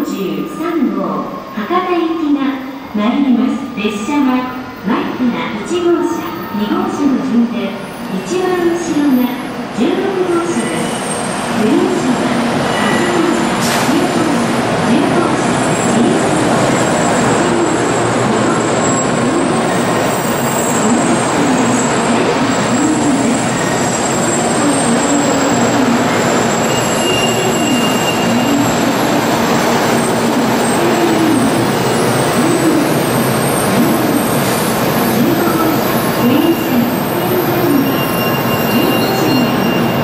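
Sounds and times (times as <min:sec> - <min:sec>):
wavering train tone: 0:15.0 - 0:40.0.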